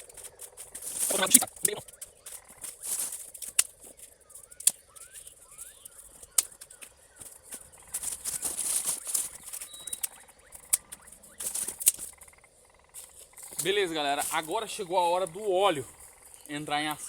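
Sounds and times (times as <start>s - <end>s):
dry sticks snapping: 0.0s - 16.6s
faint bird chirps: 0.0s - 17.0s
leaves and twigs rustling: 0.0s - 17.0s.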